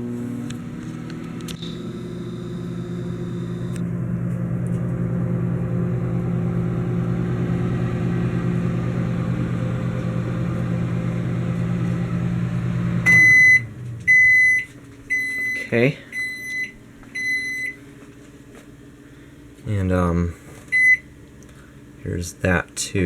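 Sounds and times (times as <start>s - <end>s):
microwave oven humming: 0.0s - 23.0s
faint high whine: 1.4s - 3.9s.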